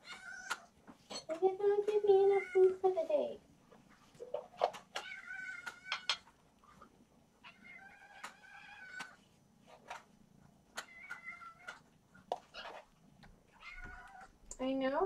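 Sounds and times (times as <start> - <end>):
kittens meowing: 4.9 - 6.1, 7.4 - 9.2, 10.8 - 11.9, 13.5 - 14.4.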